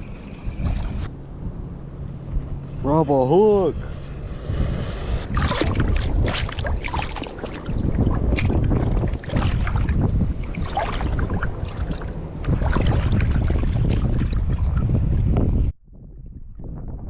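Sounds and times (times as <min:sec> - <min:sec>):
wind buffeting microphone: 0:00.0 - 0:17.0
water sloshing from wading: 0:04.9 - 0:15.3.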